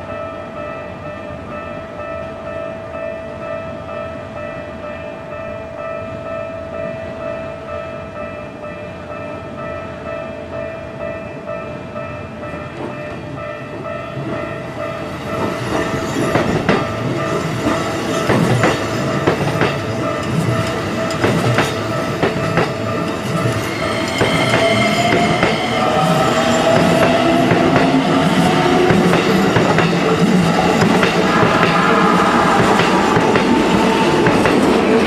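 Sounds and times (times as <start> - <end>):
electric train passing: 0.0 - 35.0
level-crossing warning bell: 0.0 - 35.0
wheels clacking over rail joints: 15.4 - 25.7.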